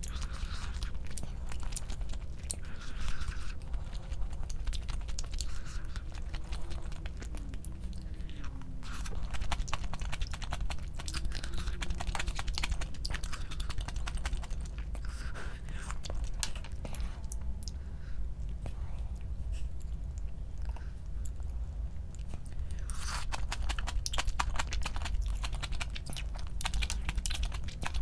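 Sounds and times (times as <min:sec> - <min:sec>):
chewing and crunching: 0:00.0 - 0:28.0
mouth clicks and smacks: 0:08.8 - 0:17.0.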